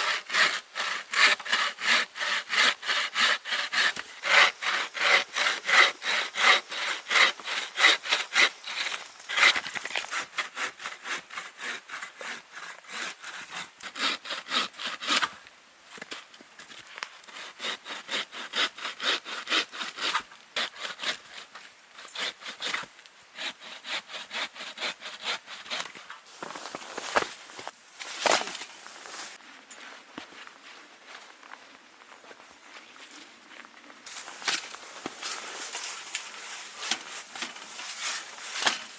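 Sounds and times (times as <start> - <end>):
hand saw cutting wood: 0.0 - 15.3, 17.3 - 27.7.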